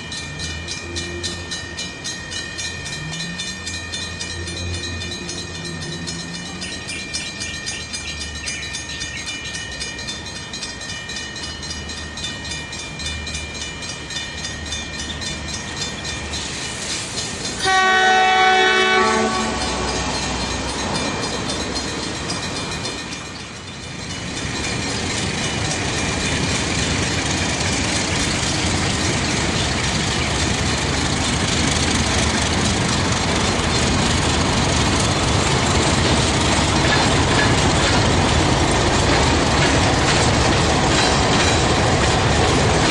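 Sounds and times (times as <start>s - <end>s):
train wheels clattering over rail joints: 10.9s - 42.9s
locomotive horn blast: 17.6s - 20.0s.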